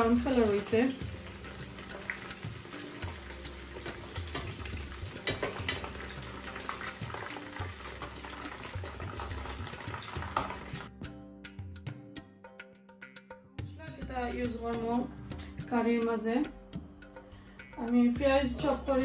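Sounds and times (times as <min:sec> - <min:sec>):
food sizzling in hot oil: 0:00.0 - 0:10.9
music with percussive taps: 0:00.1 - 0:19.0.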